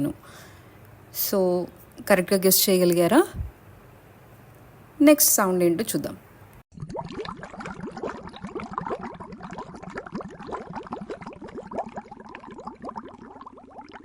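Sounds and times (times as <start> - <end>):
water boiling: 6.7 - 14.0.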